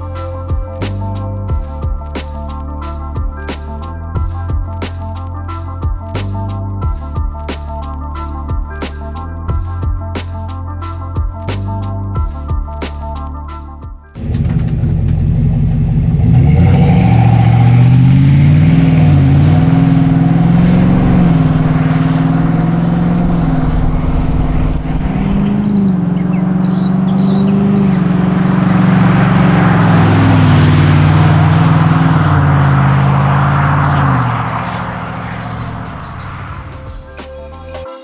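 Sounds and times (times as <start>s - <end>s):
car exhaust revving: 14.2s - 37.0s.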